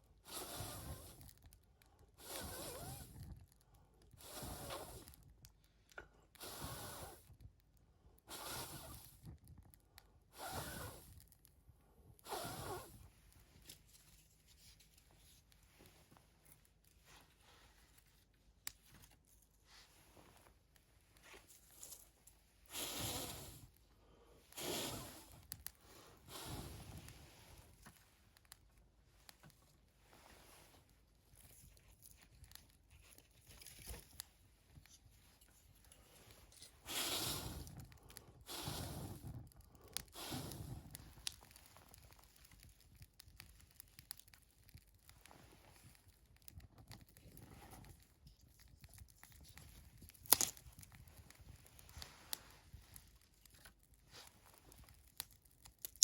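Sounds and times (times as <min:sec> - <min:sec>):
dry material tearing and crumpling: 0:40.9 - 0:56.0.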